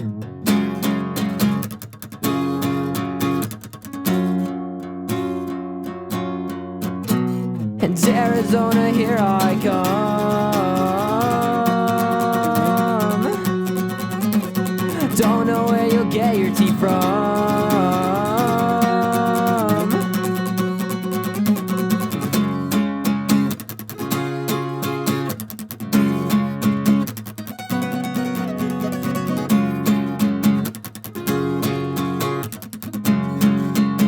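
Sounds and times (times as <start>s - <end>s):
acoustic guitar strumming: 0.0s - 34.0s
person singing: 7.8s - 21.1s.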